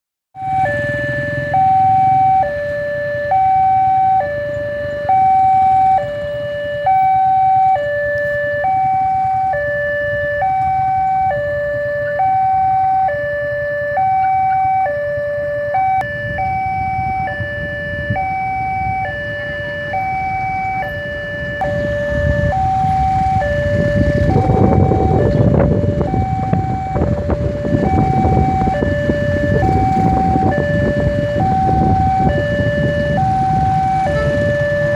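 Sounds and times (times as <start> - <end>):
level crossing two-tone warning signal: 0.4 - 34.9
train rumble: 15.5 - 34.9.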